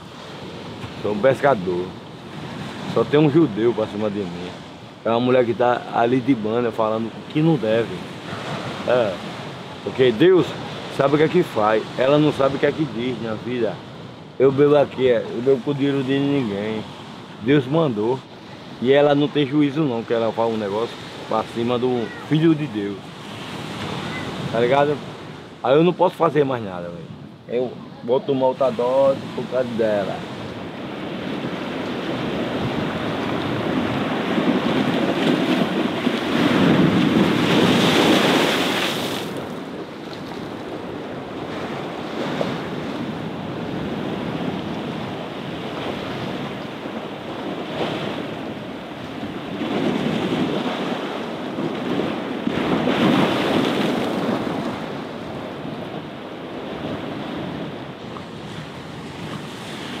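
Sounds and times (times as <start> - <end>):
waves washing up sand: 0.0 - 60.0
surf breaking against sea wall: 29.4 - 56.0.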